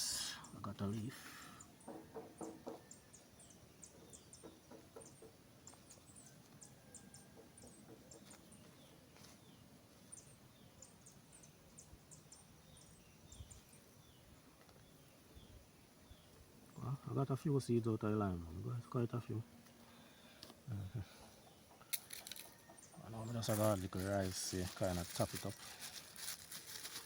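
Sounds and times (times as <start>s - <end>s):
faint birds chirping: 0.0s - 27.0s
soft knocks: 1.9s - 2.9s.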